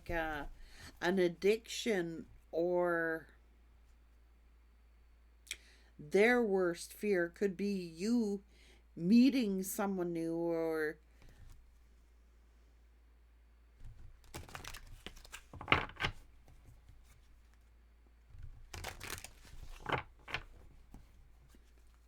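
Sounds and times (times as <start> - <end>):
cards shuffling and riffling: 13.8 - 17.6, 18.3 - 22.0.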